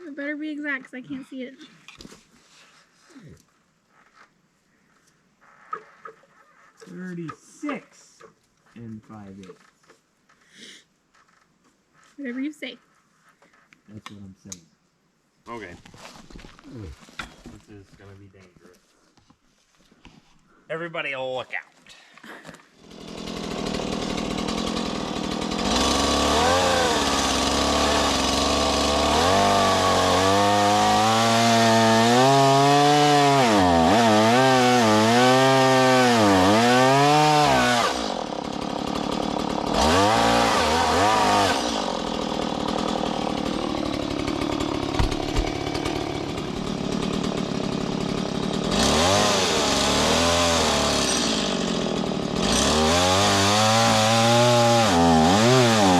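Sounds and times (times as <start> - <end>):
chainsaw cutting wood: 22.2 - 55.9.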